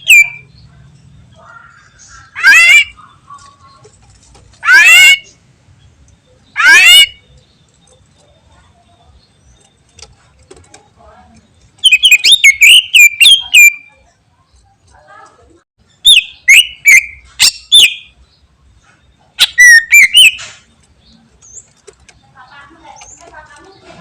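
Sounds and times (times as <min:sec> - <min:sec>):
bird singing whistled notes: 0:00.0 - 0:00.6, 0:11.8 - 0:14.1, 0:15.9 - 0:18.2, 0:19.2 - 0:20.6.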